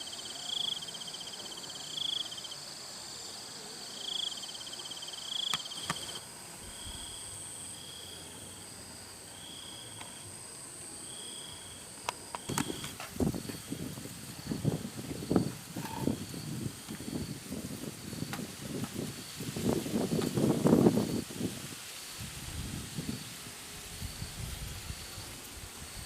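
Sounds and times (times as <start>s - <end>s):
pulsed insect trill: 0.0s - 26.0s
high-pitched insect buzzing: 11.0s - 21.5s.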